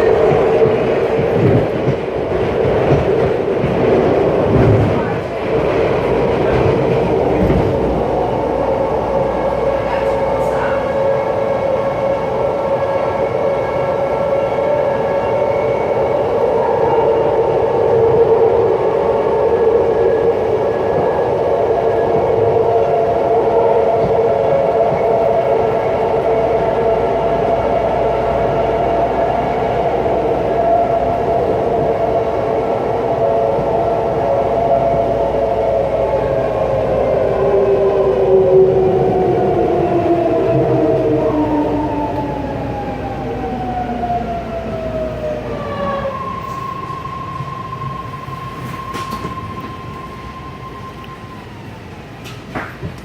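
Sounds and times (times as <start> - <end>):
train rail and wheel noise: 0.0 - 53.0.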